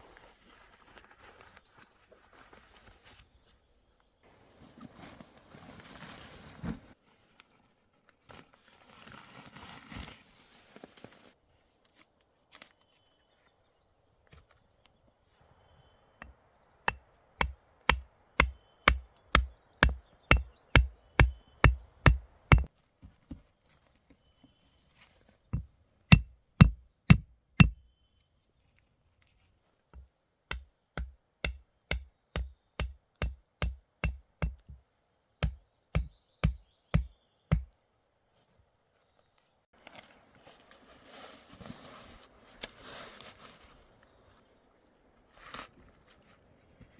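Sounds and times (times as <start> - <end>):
axe chopping wood: 16.9 - 22.7, 26.1 - 27.8, 30.5 - 34.7.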